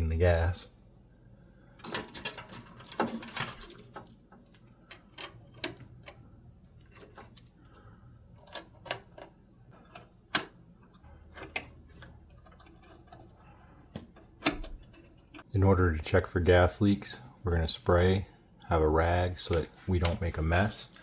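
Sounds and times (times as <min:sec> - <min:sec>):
tools clicking and tapping: 0:01.8 - 0:07.8, 0:08.4 - 0:15.5.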